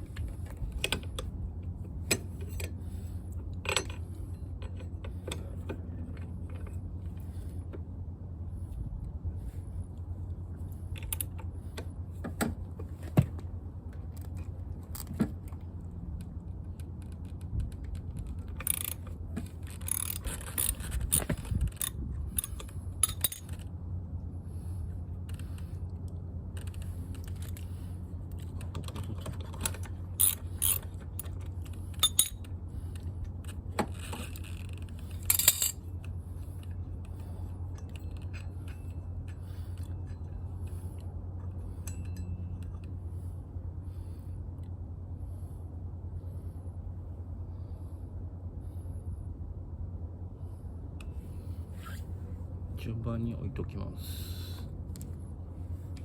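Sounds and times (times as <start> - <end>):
steady low hum: 0.0 - 56.0
metallic clinking of tools and parts: 2.0 - 2.8, 3.6 - 6.8, 19.7 - 23.6, 28.6 - 32.5, 33.9 - 35.8, 36.6 - 42.9.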